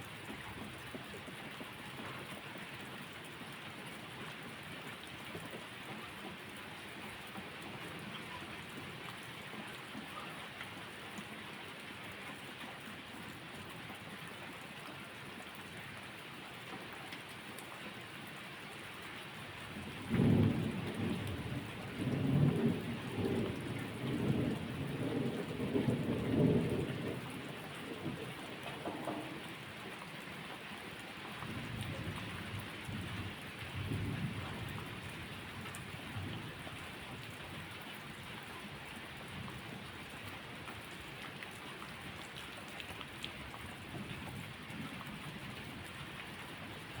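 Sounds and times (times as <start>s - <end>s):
rain falling: 0.0s - 47.0s
thunder rumbling: 19.9s - 29.6s.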